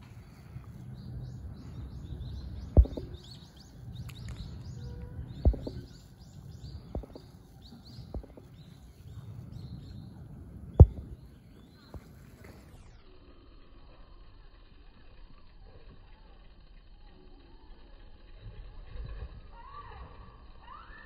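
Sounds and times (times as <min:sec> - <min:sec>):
small birds chirping: 0:00.0 - 0:13.0
low steady rumble: 0:00.0 - 0:21.0
sharp thumps: 0:02.5 - 0:03.4, 0:05.3 - 0:06.1, 0:06.8 - 0:07.4, 0:08.0 - 0:08.5, 0:10.7 - 0:11.3.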